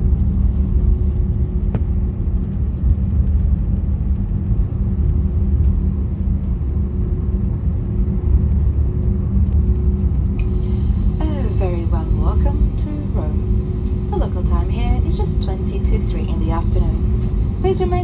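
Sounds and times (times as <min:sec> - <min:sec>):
airplane cabin rumble: 0:00.0 - 0:18.0
steady hum: 0:06.7 - 0:18.0.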